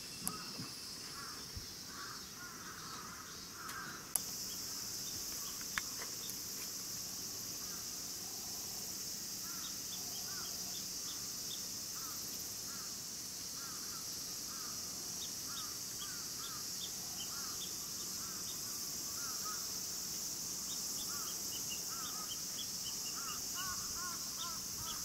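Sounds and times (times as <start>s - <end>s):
birds chirping: 0.0s - 6.6s, 13.6s - 19.8s, 20.6s - 25.0s
insect chorus: 0.0s - 25.0s.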